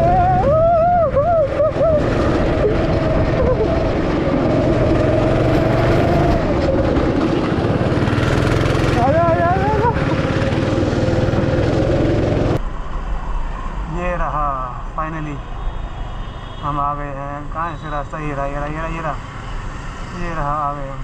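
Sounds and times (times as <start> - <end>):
wavering voice: 0.0 - 4.5, 9.0 - 10.2
vehicle engine and road rumble: 0.0 - 21.0.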